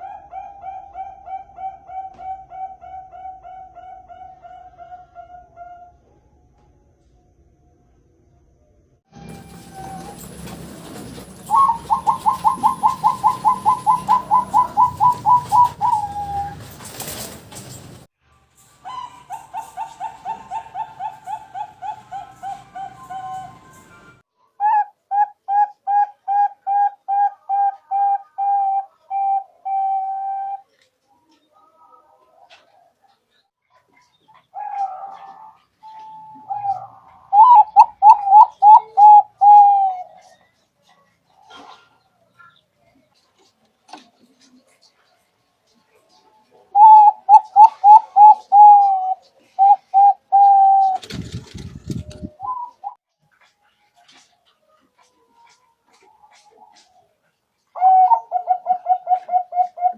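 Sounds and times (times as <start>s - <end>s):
dove cooing: 0.0s - 6.0s, 9.6s - 17.2s, 18.8s - 23.8s, 24.6s - 31.4s, 34.0s - 42.0s, 46.1s - 53.0s, 55.0s - 59.9s.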